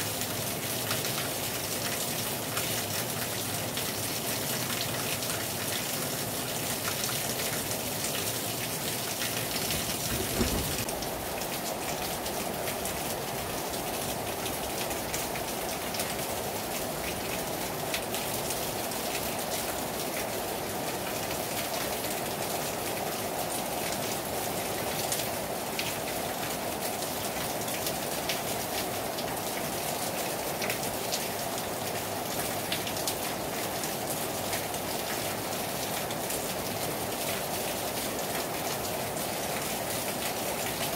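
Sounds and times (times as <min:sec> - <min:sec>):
heavy rain on a terrace: 0:00.0 - 0:40.9
low thump: 0:10.0 - 0:10.9.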